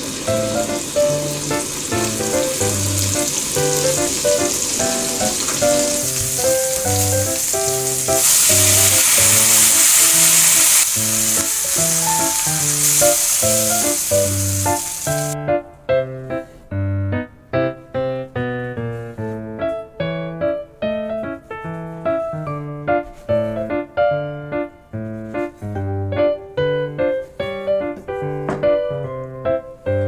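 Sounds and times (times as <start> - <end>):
food sizzling in a pan: 0.0 - 15.4
background music: 0.0 - 30.0.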